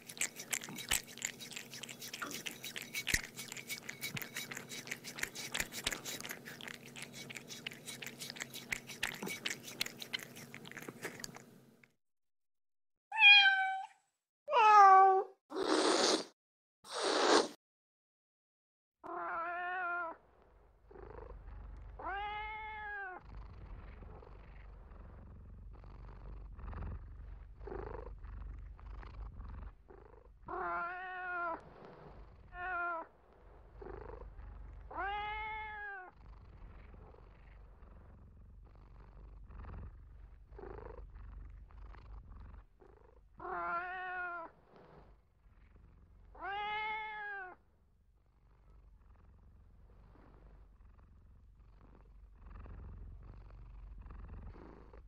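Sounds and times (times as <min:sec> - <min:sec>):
cat purring: 0:00.0 - 0:11.6, 0:20.4 - 0:55.0
cat meowing: 0:13.1 - 0:13.9, 0:14.5 - 0:15.3, 0:19.1 - 0:20.2, 0:34.9 - 0:36.1, 0:43.4 - 0:44.5, 0:46.4 - 0:47.6.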